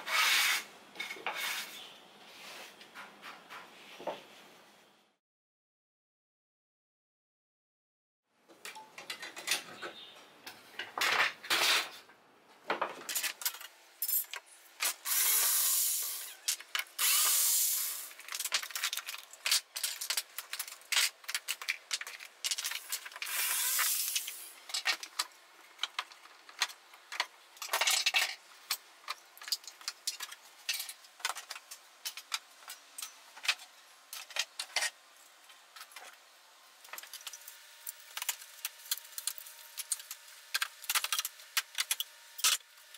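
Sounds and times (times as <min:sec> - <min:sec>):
power tool running: 0:17.0 - 0:18.1.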